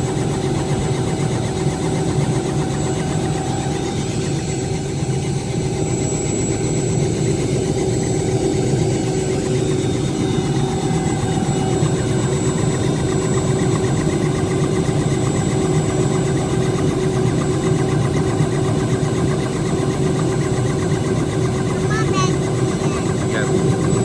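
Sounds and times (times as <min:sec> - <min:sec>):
helicopter engine and rotor: 0:00.0 - 0:24.0.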